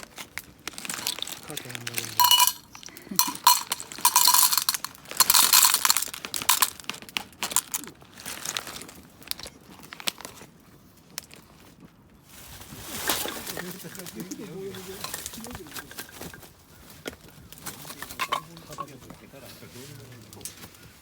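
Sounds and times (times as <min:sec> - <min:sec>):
rustling: 0:00.0 - 0:09.0
metallic clinking: 0:00.7 - 0:06.8.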